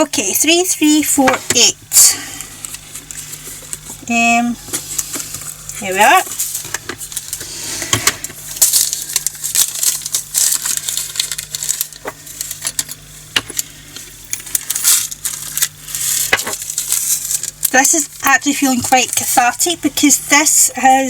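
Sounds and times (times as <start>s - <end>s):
resin beads pouring into container: 8.6s - 12.8s.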